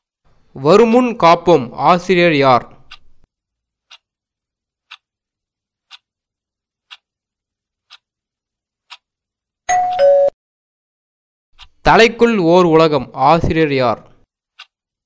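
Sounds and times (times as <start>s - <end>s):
clock ticking: 0.7s - 4.1s, 4.8s - 5.1s, 5.8s - 6.2s, 6.8s - 7.2s, 7.8s - 8.2s, 8.8s - 10.2s, 11.6s - 12.8s, 14.5s - 14.9s.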